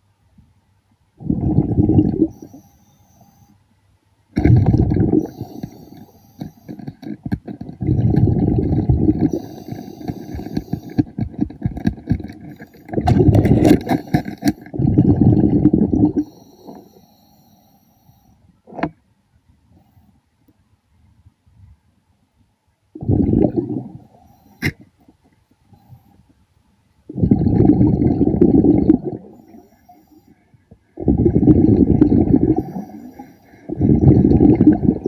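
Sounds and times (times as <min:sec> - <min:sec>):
underwater air bubbling: 0:01.2 - 0:02.7, 0:04.4 - 0:17.1, 0:23.0 - 0:24.8, 0:27.1 - 0:30.2, 0:30.8 - 0:35.0
clicks and scrapes: 0:04.4 - 0:08.3, 0:09.2 - 0:14.8.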